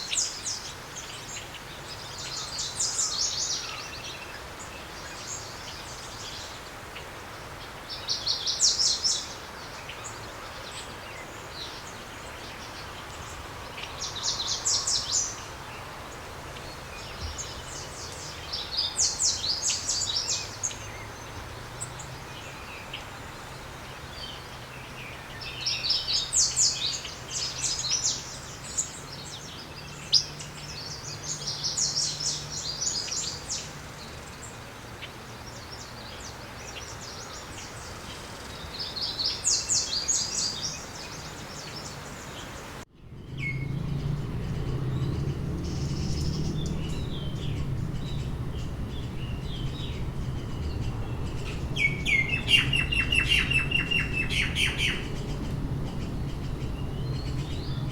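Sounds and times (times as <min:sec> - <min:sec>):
songbirds chirping trills: 0:00.0 - 0:57.9
steady low hum: 0:42.9 - 0:57.9.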